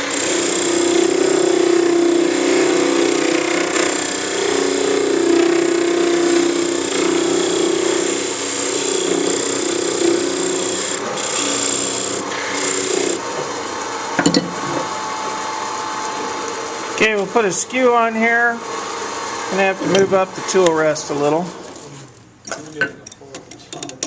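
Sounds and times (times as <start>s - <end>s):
wood lathe hum: 0.0s - 21.8s
tool scraping spinning wood: 0.0s - 22.1s
sharp knocks: 14.2s - 14.9s.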